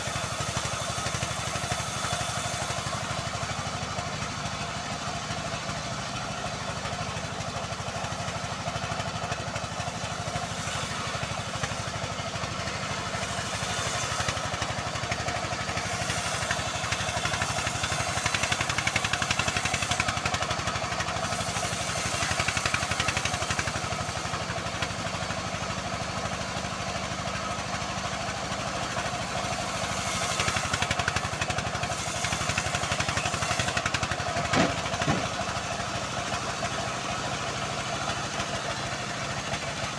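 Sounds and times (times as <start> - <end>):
bandsaw mill sawing log: 0.0 - 39.9.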